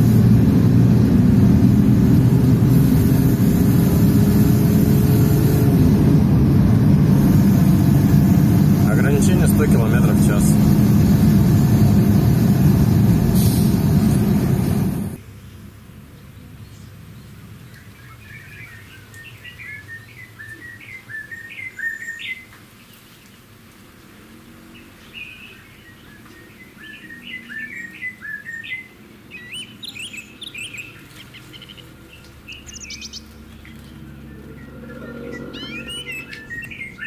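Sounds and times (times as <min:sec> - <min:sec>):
birds chirping: 0:07.1 - 0:12.5, 0:25.0 - 0:37.0.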